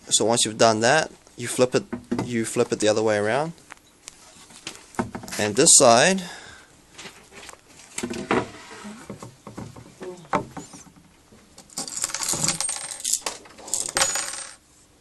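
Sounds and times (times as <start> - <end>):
wooden panels knocking and scraping: 1.8 - 2.4, 4.7 - 5.6, 8.0 - 11.1.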